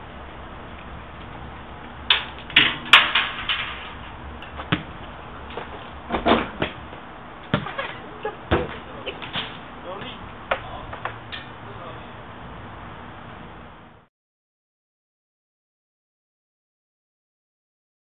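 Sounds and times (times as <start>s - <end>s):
room noise hum: 0.0s - 14.1s.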